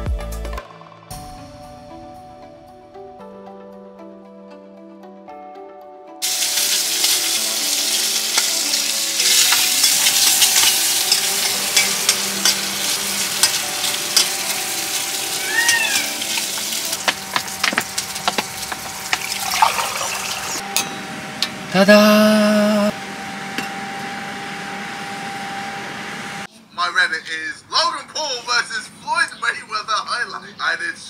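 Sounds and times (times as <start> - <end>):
background music: 0.0 - 20.6
food sizzling in a pot: 6.2 - 20.6.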